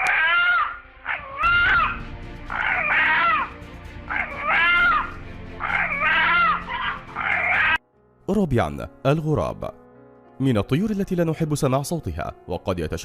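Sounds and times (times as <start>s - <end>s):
rooster calling: 0.0s - 7.8s
background music: 0.0s - 13.0s.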